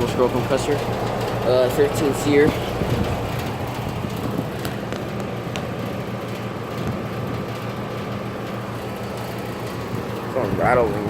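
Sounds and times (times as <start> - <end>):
air conditioner unit humming: 0.0 - 11.0
faint steady whine: 0.0 - 11.0.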